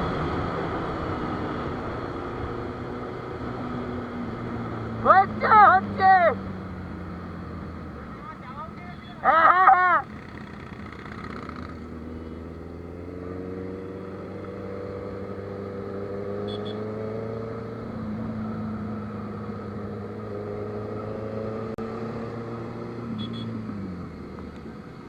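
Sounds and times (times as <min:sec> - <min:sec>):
motorcycle engine running: 0:03.6 - 0:21.4.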